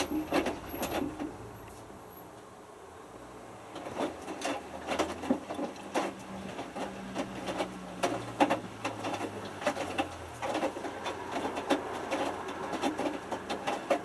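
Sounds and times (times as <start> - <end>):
washing machine motor humming: 0.0 - 1.7, 2.9 - 14.0
wet laundry knocking in drum: 3.9 - 14.0.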